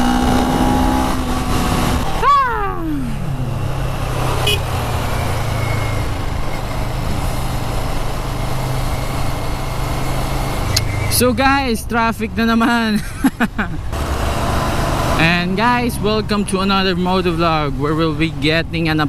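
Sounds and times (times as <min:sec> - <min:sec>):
motorcycle engine revving and idling: 0:00.0 - 0:11.4
wind noise: 0:00.0 - 0:11.6.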